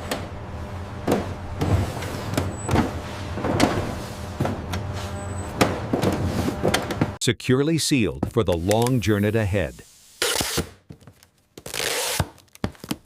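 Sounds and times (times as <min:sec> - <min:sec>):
machinery motor hum: 0:00.0 - 0:07.2.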